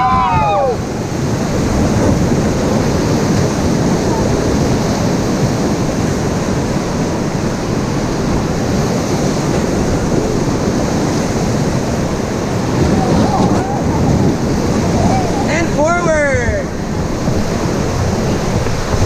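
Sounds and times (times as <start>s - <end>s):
rushing river water: 0.0s - 19.0s
wind buffeting microphone: 0.0s - 19.0s.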